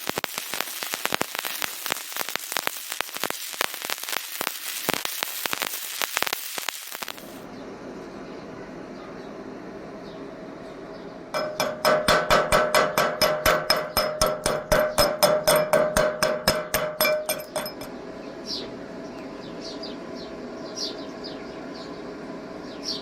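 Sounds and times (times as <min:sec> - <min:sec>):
hammer striking metal: 0:11.4 - 0:17.9.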